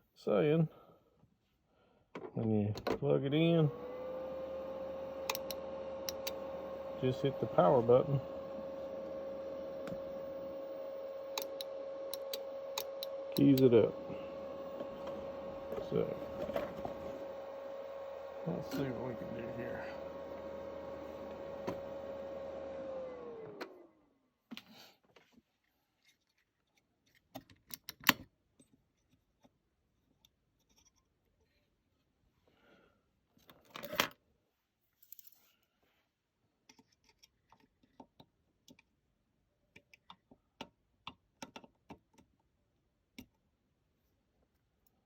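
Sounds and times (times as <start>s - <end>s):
amplifier whine and hum: 3.0s - 23.8s.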